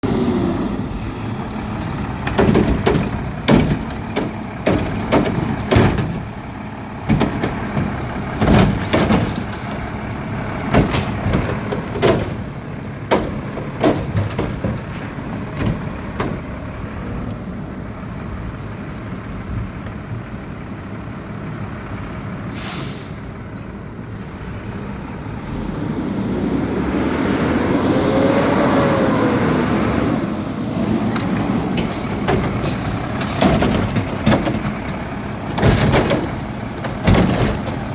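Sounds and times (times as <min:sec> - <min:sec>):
diesel engine revving: 0:00.0 - 0:37.9
recyclables clanking and crashing: 0:01.4 - 0:17.3, 0:30.8 - 0:37.9
air brake hiss: 0:22.5 - 0:23.3.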